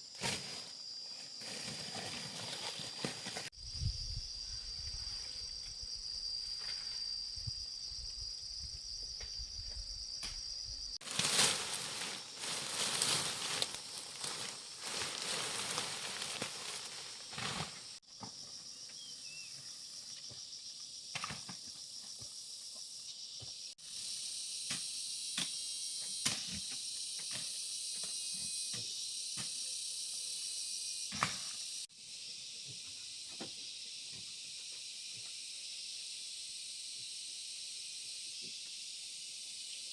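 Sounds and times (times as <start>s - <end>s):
insects trilling: 0.0s - 39.9s
rustling and scraping: 0.2s - 3.5s, 11.0s - 18.0s.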